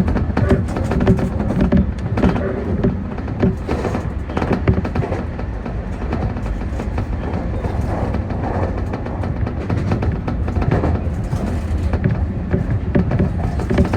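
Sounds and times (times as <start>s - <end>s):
electric train rumbling: 0.0s - 13.9s
wheels clicking over rail joints: 0.0s - 13.9s.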